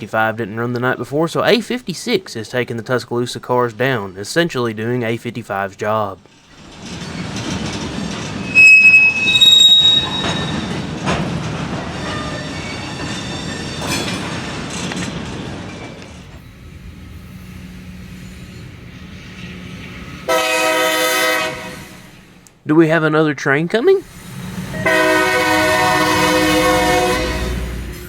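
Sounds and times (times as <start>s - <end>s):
freight train cars rolling: 0.0s - 28.0s
steel wheel flanges squealing: 6.5s - 11.1s, 11.8s - 14.4s.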